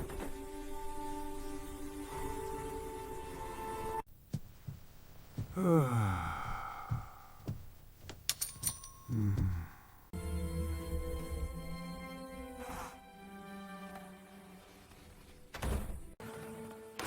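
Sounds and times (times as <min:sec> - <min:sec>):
background music: 0:00.0 - 0:04.1, 0:10.2 - 0:17.0
person sighing: 0:05.4 - 0:07.6, 0:09.1 - 0:10.0.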